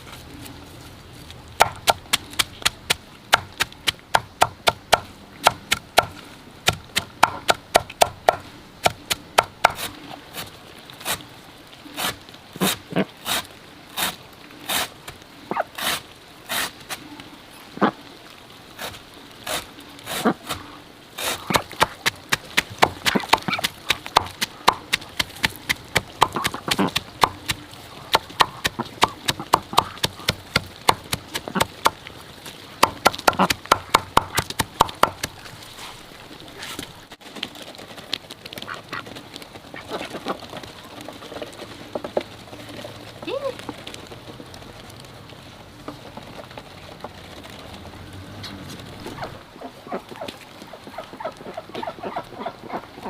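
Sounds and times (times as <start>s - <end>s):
ducks quacking: 26.2s - 30.5s, 48.5s - 53.0s.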